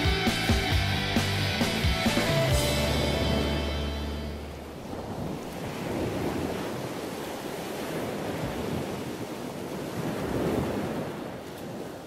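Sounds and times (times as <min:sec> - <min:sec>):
ocean waves washing on shore: 0:02.6 - 0:12.0.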